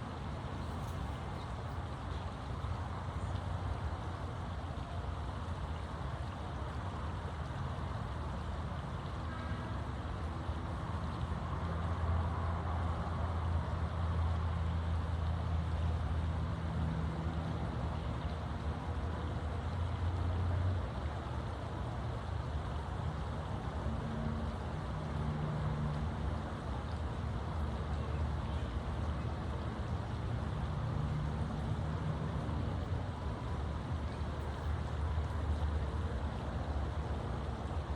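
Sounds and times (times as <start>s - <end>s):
outdoor background noise: 0.0s - 37.9s.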